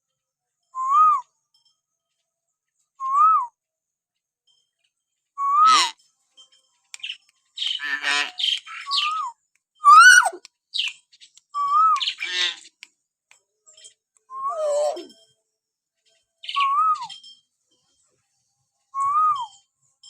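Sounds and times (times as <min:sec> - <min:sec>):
bird rasping squawks: 0:07.7 - 0:09.2, 0:09.9 - 0:10.4
bird whistling: 0:08.8 - 0:10.4, 0:11.6 - 0:12.2, 0:14.3 - 0:15.1, 0:16.5 - 0:17.2, 0:19.0 - 0:19.5.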